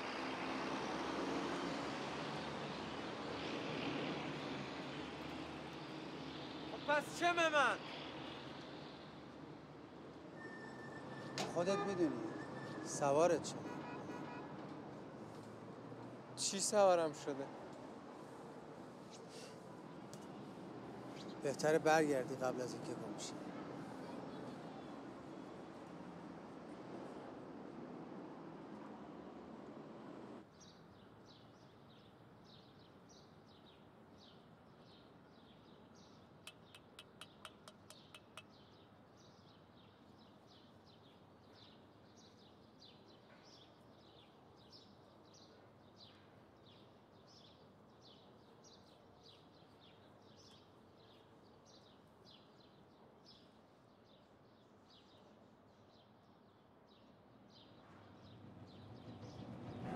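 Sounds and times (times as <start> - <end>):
bird chirping: 33.6 - 39.9
sharp clicks: 36.5 - 38.5.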